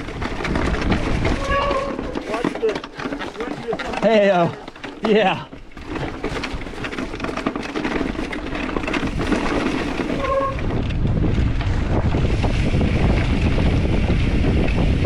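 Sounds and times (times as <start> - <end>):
wind on microphone: 0.0 - 2.3, 8.8 - 15.0
mountain bike rolling on dirt: 0.0 - 15.0.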